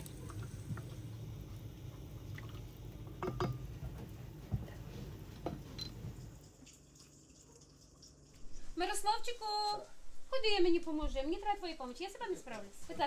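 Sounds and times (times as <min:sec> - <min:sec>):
liquid being poured: 0:00.0 - 0:08.5
kitchenware clinking: 0:02.5 - 0:06.4.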